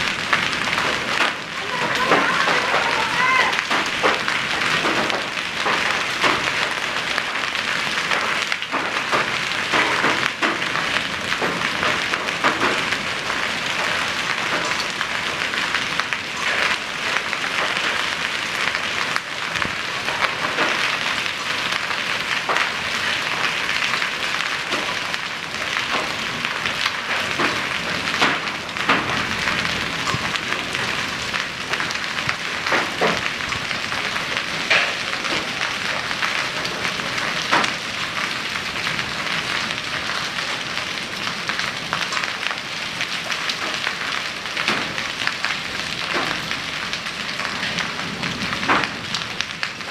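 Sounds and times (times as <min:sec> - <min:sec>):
hailstones striking hard surfaces: 0:00.0 - 0:49.9
heavy rain: 0:00.0 - 0:49.9.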